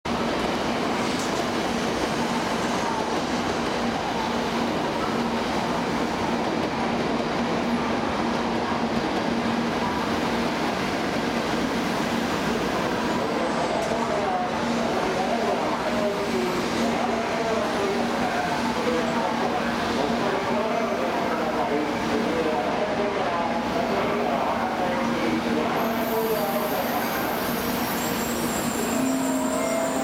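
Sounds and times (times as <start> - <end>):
train equipment humming: 25.3 - 30.0.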